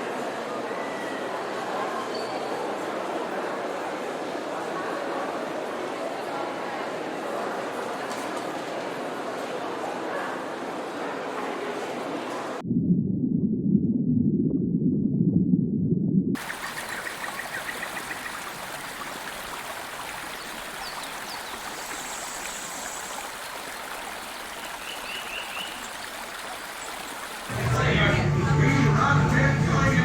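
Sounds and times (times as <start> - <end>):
loud muffled low sound: 12.6 - 16.3
flowing water rushing: 16.4 - 27.7.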